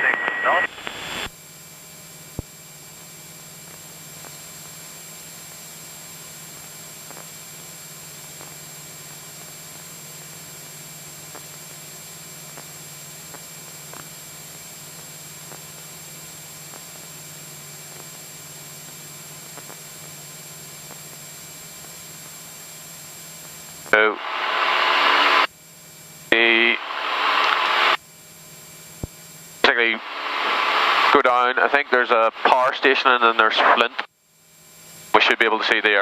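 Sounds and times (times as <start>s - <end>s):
aircraft cabin hiss and engine hum: 0.0s - 1.4s.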